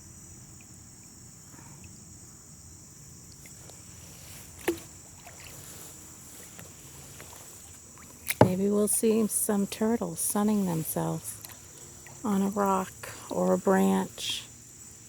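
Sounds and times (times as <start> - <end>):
insects chirring: 0.0 - 15.0
kayak paddling on water: 3.2 - 15.0.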